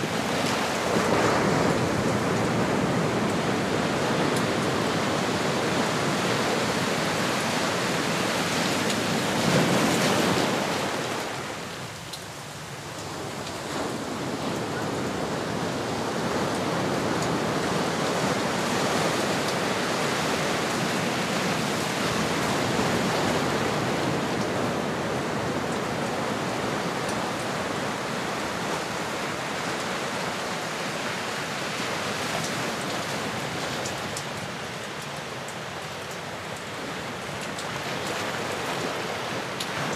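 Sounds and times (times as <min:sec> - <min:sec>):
ocean waves washing ashore: 0:00.0 - 0:39.9.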